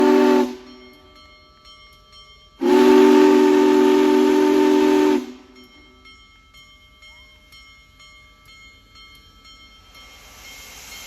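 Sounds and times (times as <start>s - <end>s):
steam hiss: 0.0s - 0.8s, 9.8s - 11.0s
steam locomotive whistle: 0.0s - 0.8s, 2.6s - 5.6s.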